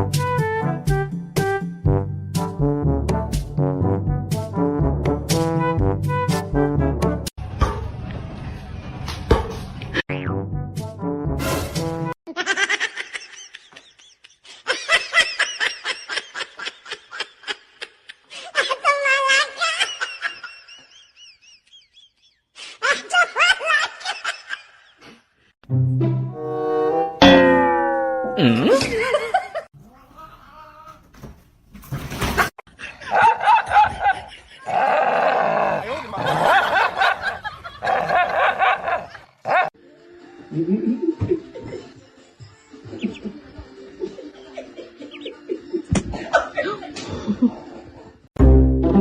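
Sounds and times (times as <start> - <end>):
people giggling: 12.3 - 25.2, 28.4 - 29.7, 32.7 - 34.8, 35.8 - 39.4, 40.5 - 42.0, 42.9 - 48.3
person giggling: 28.4 - 29.6.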